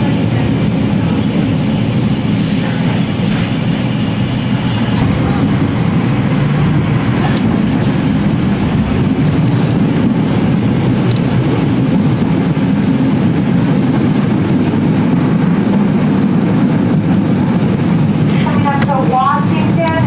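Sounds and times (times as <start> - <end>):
streetcar rumbling on rails: 0.0 - 20.0.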